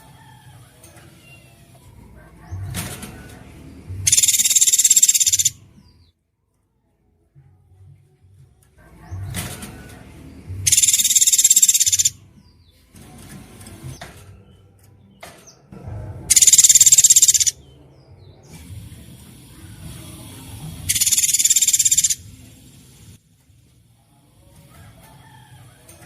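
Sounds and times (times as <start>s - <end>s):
bird rattling trills: 4.0s - 5.6s, 10.6s - 12.2s, 16.3s - 17.6s, 20.8s - 22.6s
faint bird chirps: 4.0s - 6.0s, 10.6s - 12.8s, 16.3s - 17.6s, 20.9s - 22.4s.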